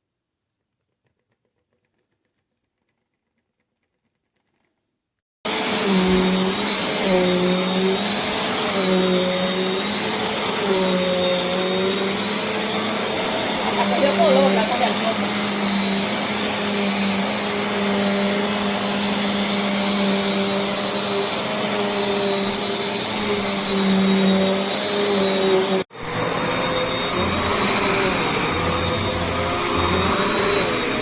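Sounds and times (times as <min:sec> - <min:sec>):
vacuum cleaner running: 0:05.5 - 0:31.0.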